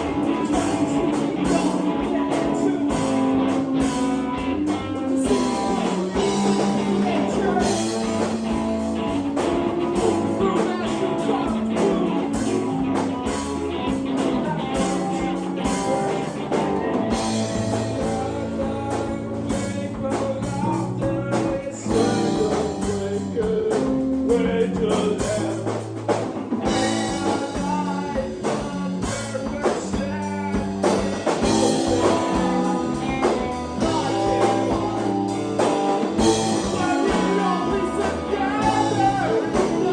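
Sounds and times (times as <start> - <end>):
blues-rock band playing: 0.0 - 39.9
person singing: 0.0 - 39.9.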